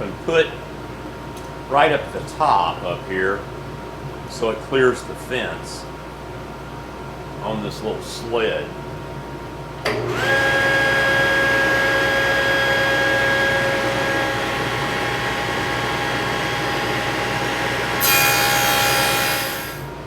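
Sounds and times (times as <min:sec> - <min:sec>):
table saw whine: 0:09.9 - 0:20.0
saw cutting into wood: 0:10.1 - 0:19.9.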